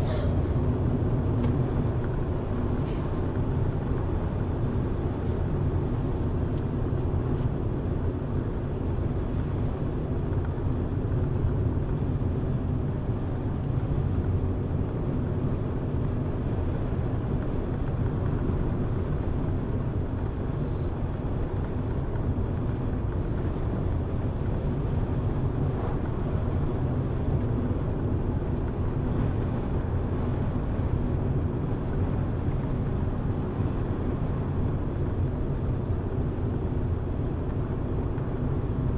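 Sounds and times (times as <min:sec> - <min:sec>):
car engine and tyre noise: 0:00.0 - 0:38.9.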